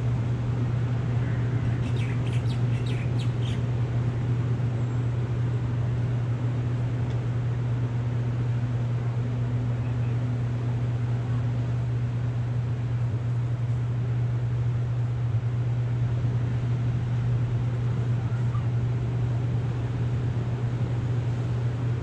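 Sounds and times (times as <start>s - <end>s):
low hum and hiss: 0.0s - 22.0s
bird chirping: 1.8s - 3.6s.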